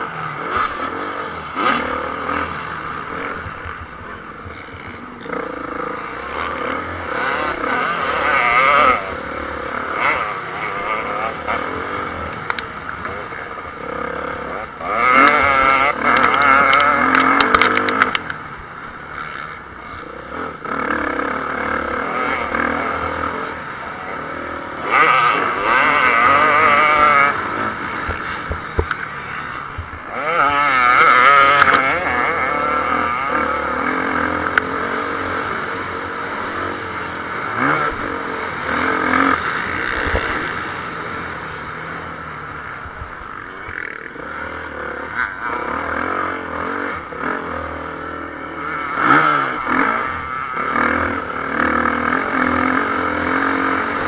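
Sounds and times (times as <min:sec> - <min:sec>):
motocross motorcycles racing: 0:00.0 - 0:54.0.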